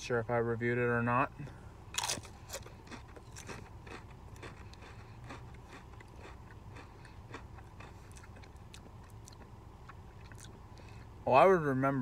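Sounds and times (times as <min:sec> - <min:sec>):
man chewing crisps: 0:01.9 - 0:11.1.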